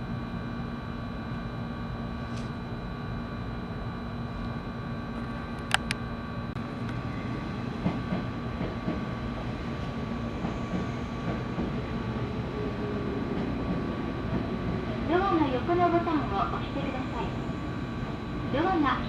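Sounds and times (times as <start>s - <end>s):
train inverter tones: 0.0s - 19.0s
electric train rumbling: 1.3s - 19.0s
sharp clicks: 5.6s - 6.0s.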